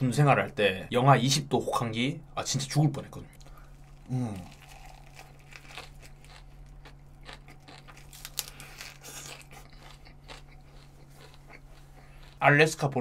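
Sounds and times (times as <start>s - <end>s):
steady low hum: 0.0s - 13.0s
crisp chewing crunches: 3.4s - 13.0s.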